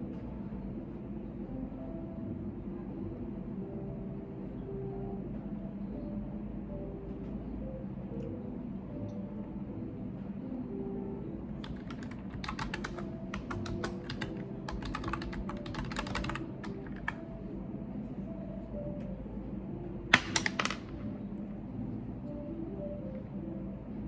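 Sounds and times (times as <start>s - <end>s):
keyboard typing clicks: 11.6s - 17.3s.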